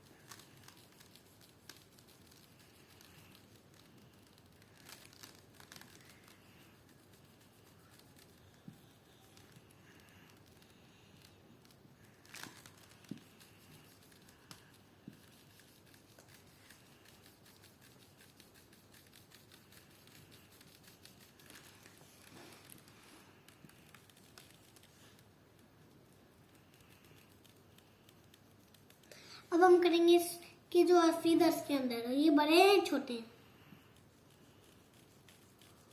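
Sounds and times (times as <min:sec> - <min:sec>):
marker scratching on paper: 0:12.7 - 0:25.2, 0:33.7 - 0:35.9.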